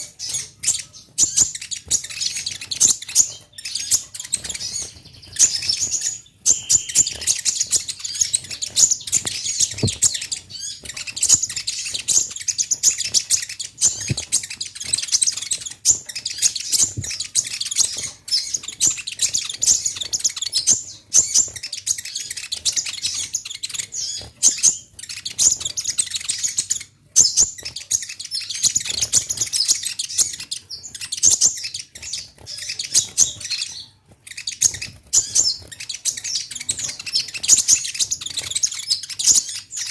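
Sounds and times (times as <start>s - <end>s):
bird singing high chirps and trills: 0.0s - 39.9s.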